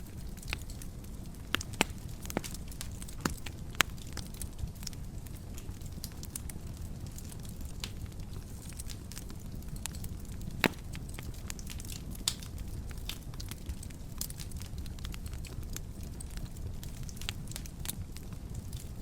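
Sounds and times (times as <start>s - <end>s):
wood fire crackling: 0.0s - 19.0s
sharp pops and snaps: 0.1s - 5.0s, 7.2s - 15.5s.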